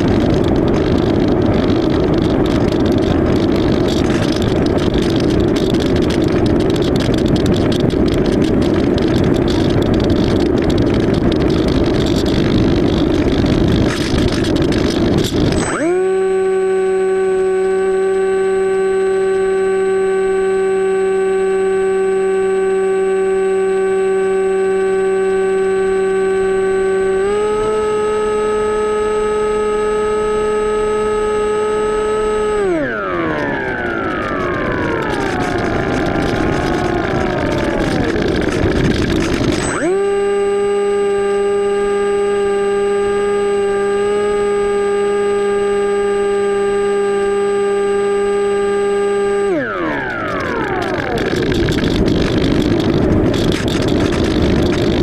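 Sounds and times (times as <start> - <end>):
model plane electric motor whining: 12.5 - 55.0.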